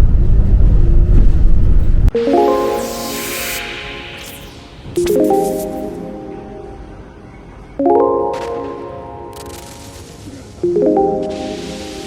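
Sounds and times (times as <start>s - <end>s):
background music rising notes: 2.1s - 10.0s, 10.6s - 12.0s
hiss: 2.5s - 5.9s.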